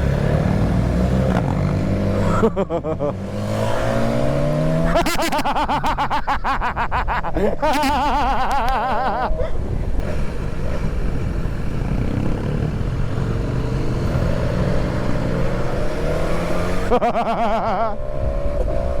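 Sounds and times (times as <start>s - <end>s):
motorcycle engine: 0.0s - 5.3s, 10.0s - 17.0s
wind noise: 6.1s - 13.6s, 17.9s - 19.0s.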